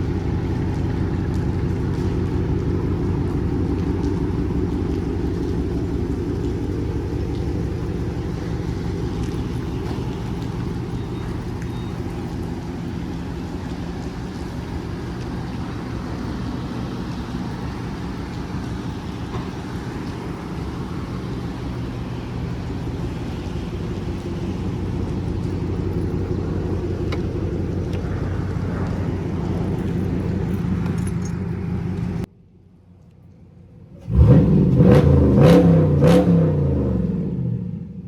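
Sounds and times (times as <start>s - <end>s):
car engine running: 0.0s - 38.0s
road noise: 0.0s - 38.0s
click: 27.1s - 27.3s.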